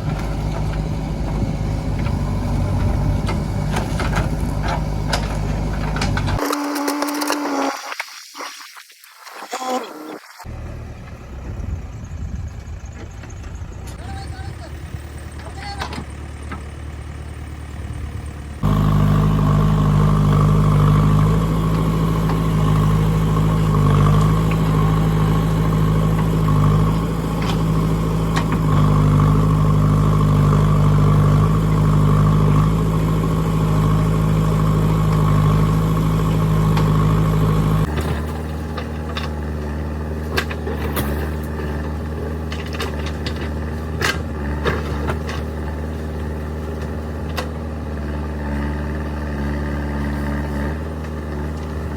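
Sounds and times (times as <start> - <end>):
metallic knocks and clanks: 0.0 - 6.4
diesel engine running: 0.0 - 7.7, 10.4 - 51.9.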